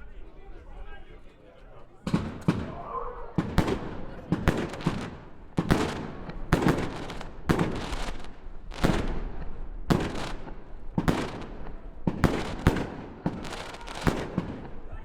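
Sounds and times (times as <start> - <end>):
fireworks banging: 2.0 - 14.9
fireworks crackling hiss: 4.6 - 10.5, 11.1 - 14.3.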